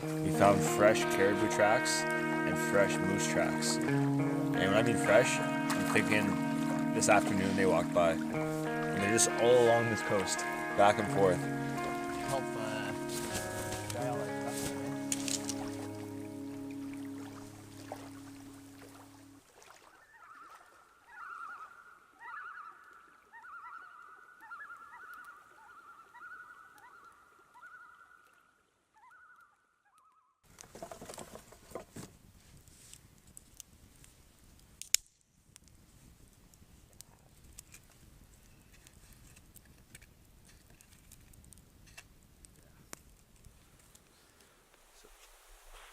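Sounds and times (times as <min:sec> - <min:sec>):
bird pulsing call: 0:19.9 - 0:30.4.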